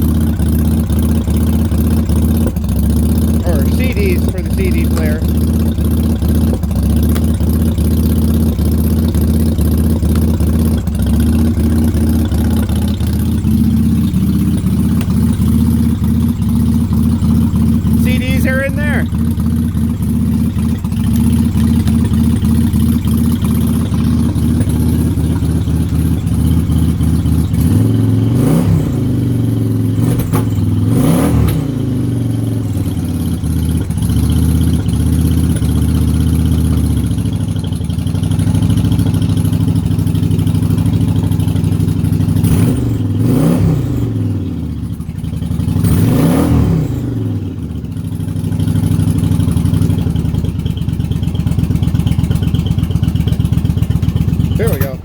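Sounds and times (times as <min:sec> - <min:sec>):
motorcycle engine idling: 0:00.0 - 0:55.0
throttle blips revving: 0:03.4 - 0:05.4.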